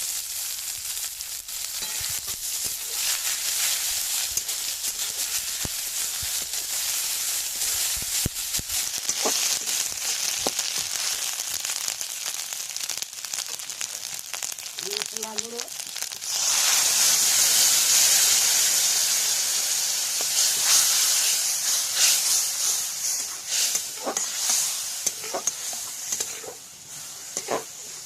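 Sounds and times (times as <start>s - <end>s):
onion frying in hot oil: 0.0s - 28.0s.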